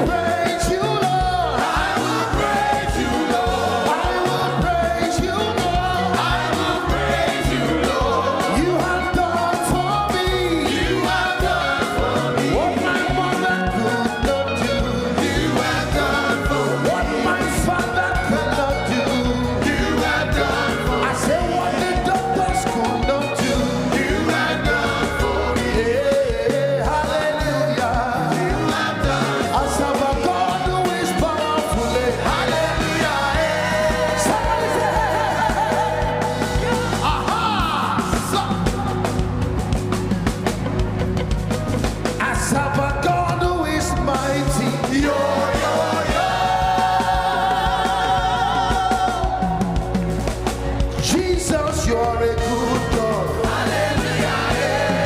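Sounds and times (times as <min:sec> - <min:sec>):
people singing: 0:00.0 - 0:40.2, 0:42.1 - 0:55.0
live gospel band music: 0:00.0 - 0:55.0.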